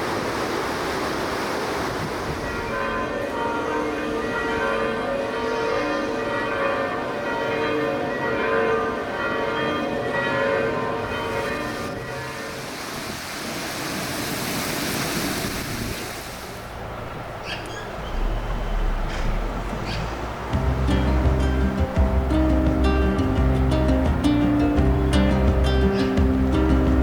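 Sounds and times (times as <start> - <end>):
church bells ringing: 2.4 - 12.6.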